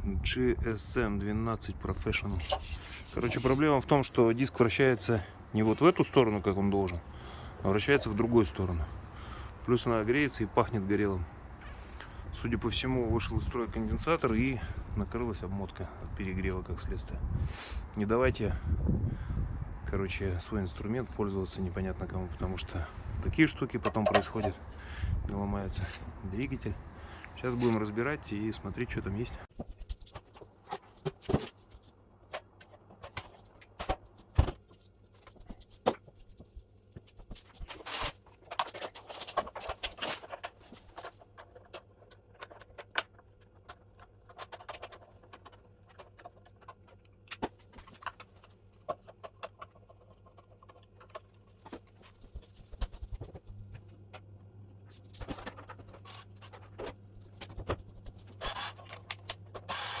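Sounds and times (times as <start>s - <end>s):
tools and parts clicking: 58.4s - 60.0s.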